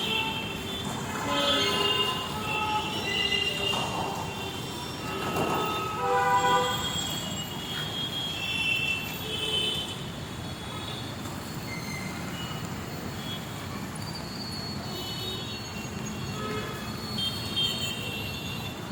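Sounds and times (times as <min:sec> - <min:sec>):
vehicle horns honking: 0:00.0 - 0:09.9.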